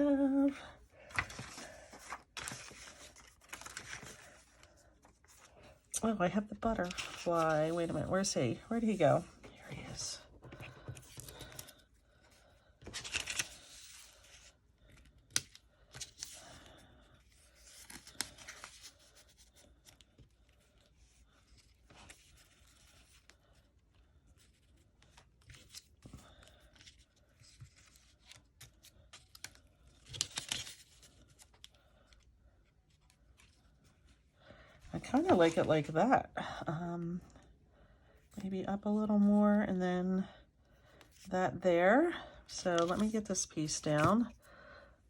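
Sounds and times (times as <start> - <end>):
paper rustling and scraping: 1.1 - 5.8, 6.6 - 11.7, 12.8 - 14.6, 35.0 - 35.9, 42.8 - 44.3.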